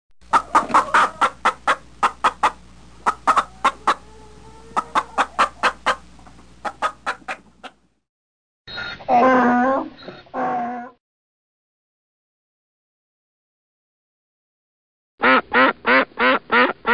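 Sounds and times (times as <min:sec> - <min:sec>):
chicken clucking: 0:00.2 - 0:07.8.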